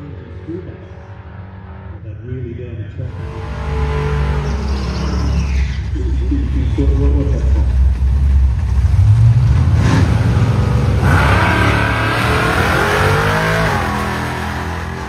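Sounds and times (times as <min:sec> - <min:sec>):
drag car engine revving and accelerating: 0:03.0 - 0:15.0.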